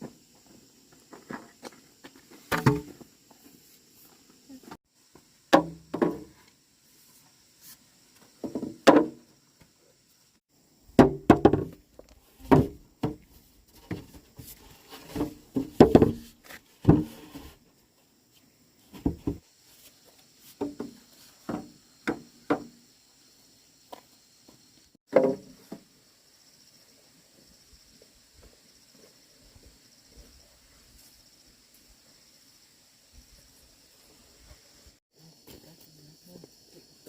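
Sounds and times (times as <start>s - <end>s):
wooden knocks and thuds: 5.5s - 6.4s, 8.4s - 9.2s, 11.0s - 11.8s, 12.4s - 14.3s, 15.0s - 17.4s, 18.9s - 19.4s, 20.6s - 22.8s, 25.1s - 25.8s.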